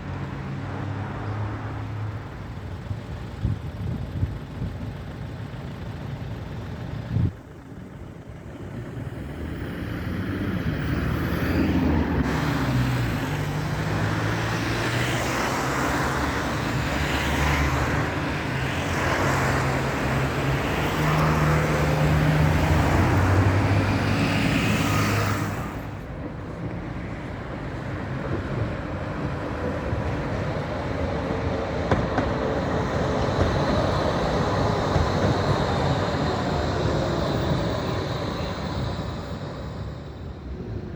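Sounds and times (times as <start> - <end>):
vehicle motor hum: 0.0 - 40.9.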